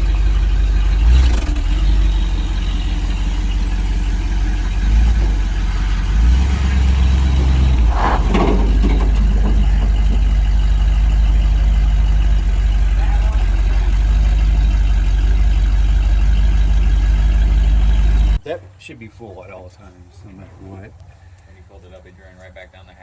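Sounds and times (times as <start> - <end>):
engine knock: 0.0 - 18.4
pickup truck engine running: 0.0 - 18.4.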